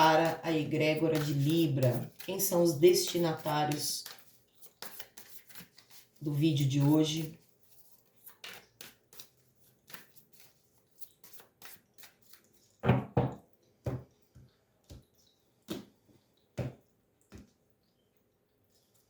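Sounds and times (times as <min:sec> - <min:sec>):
playing cards shuffling: 0:01.1 - 0:06.2, 0:06.8 - 0:12.4.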